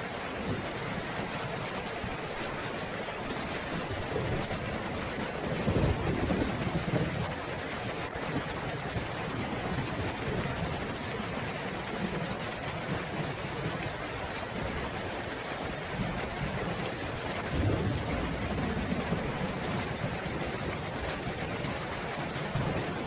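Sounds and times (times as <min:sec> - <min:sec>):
rain falling: 0:00.0 - 0:23.0
distant thunder rumbling: 0:03.7 - 0:07.4, 0:16.0 - 0:23.0.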